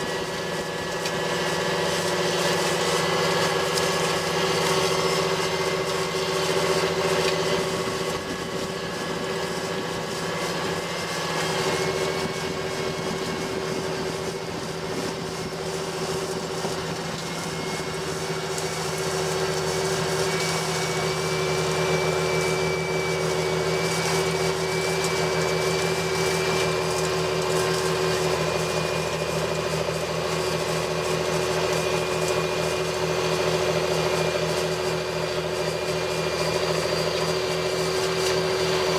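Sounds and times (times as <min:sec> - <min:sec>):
tractor diesel engine running: 0:00.0 - 0:38.9
faint high whine: 0:03.7 - 0:29.4.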